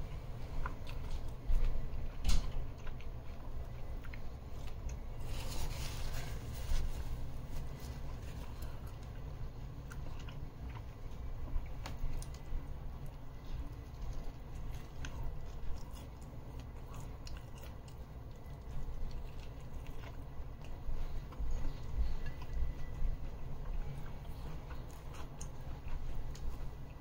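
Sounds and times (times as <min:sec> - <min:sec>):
close-up chewing with crunches: 0:00.1 - 0:27.0.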